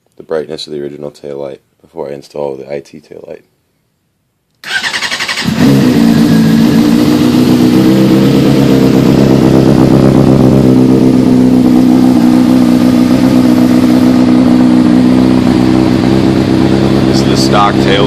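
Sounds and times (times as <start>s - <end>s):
motorcycle engine starting and idling: 4.6s - 18.0s.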